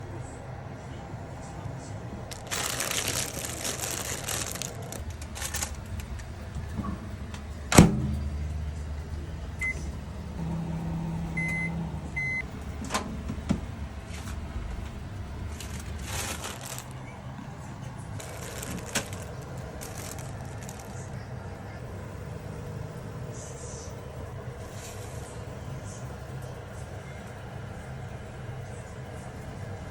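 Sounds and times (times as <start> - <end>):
low steady hum: 0.0 - 29.9
rustling: 2.3 - 6.3, 14.1 - 21.2
appliance keypad beeps: 9.6 - 9.8, 11.4 - 12.4.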